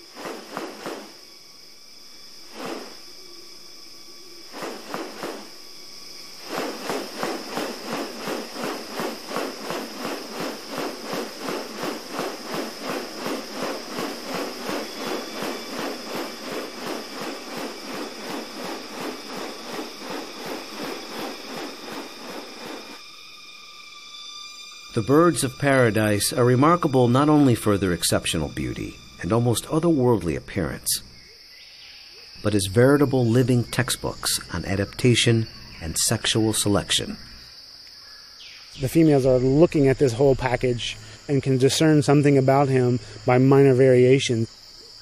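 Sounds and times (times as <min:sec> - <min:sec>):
insects buzzing high-pitched: 0:00.0 - 0:45.0
repeated pulsing sound: 0:06.4 - 0:23.0.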